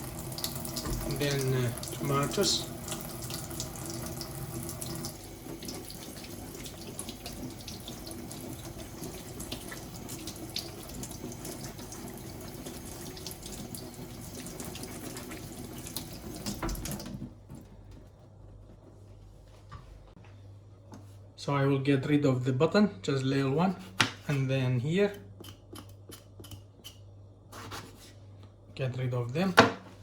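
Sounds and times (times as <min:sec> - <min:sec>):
tap running into sink: 0:00.4 - 0:13.8, 0:14.4 - 0:17.7.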